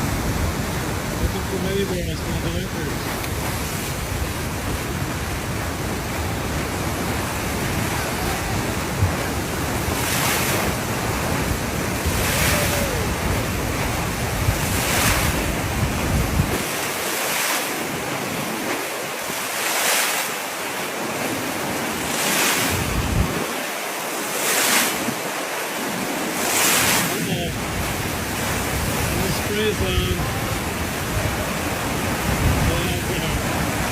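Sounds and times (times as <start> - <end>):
wind buffeting microphone: 0.0 - 17.0, 22.2 - 23.5, 27.4 - 33.9
ocean waves breaking: 0.0 - 33.9.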